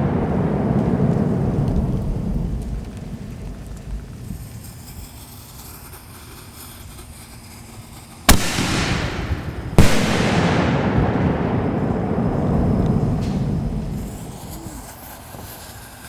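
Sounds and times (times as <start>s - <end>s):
firework bangs with rolling echo: 0.0s - 4.8s, 8.3s - 15.7s.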